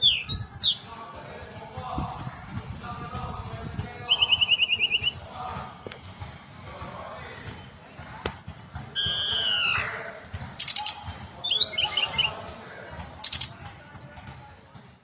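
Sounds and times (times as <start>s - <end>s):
songbird singing: 0.0s - 1.0s, 3.1s - 13.6s.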